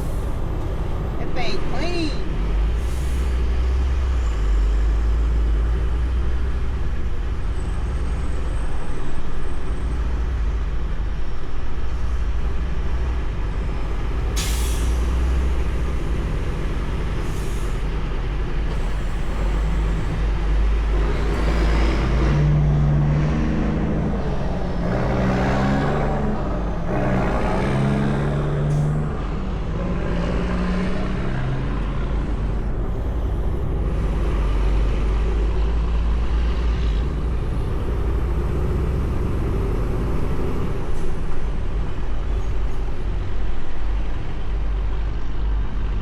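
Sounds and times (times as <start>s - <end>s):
truck diesel engine drone: 0.0s - 46.0s
air brake hiss: 2.8s - 3.4s, 14.4s - 15.5s.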